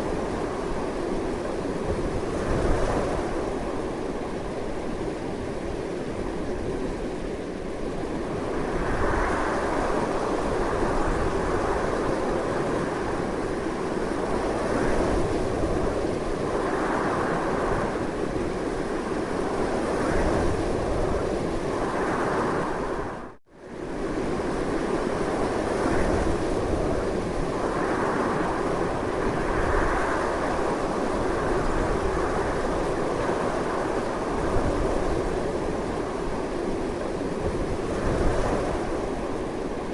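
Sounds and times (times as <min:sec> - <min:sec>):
strong gusty wind: 0:00.0 - 0:39.9.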